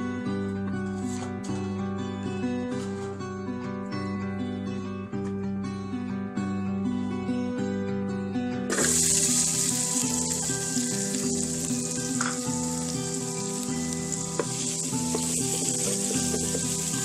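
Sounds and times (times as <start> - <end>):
guitar music: 0.0 - 17.0
food sizzling in hot oil: 8.7 - 17.0.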